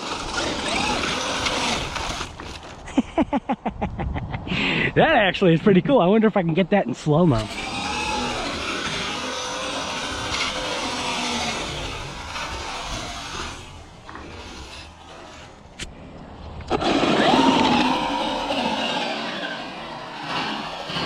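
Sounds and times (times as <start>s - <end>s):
electric motor whining: 0.0s - 2.8s, 7.4s - 21.0s.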